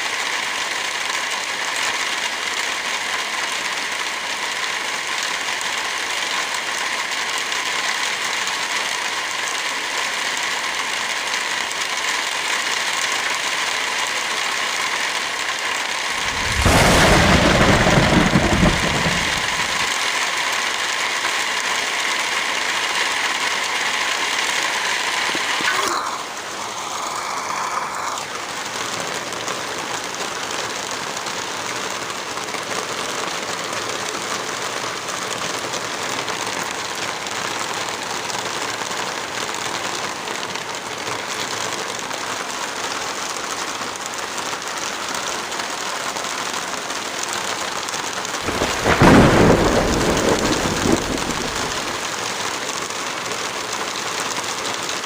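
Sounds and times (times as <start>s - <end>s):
heavy rain hiss: 0.0s - 55.0s
loud low rumble: 16.2s - 19.9s.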